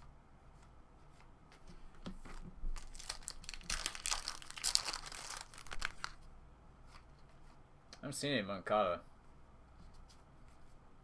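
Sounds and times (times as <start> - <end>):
card pack wrapper tearing and crinkling: 2.8 - 6.2.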